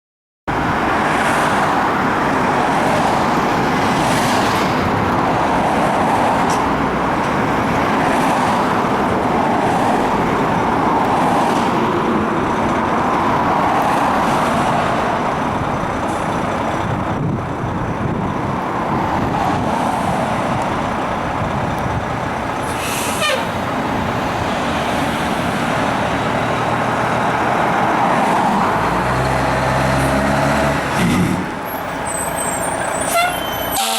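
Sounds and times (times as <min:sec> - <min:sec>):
diesel engine: 0:00.5 - 0:33.9
short sharp air hiss: 0:22.7 - 0:23.5
fire engine siren wailing: 0:31.6 - 0:33.9.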